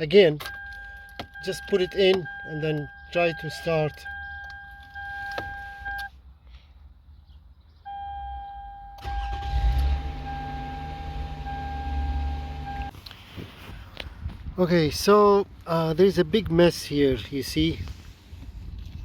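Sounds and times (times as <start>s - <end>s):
starter cranking engine: 9.0s - 10.8s.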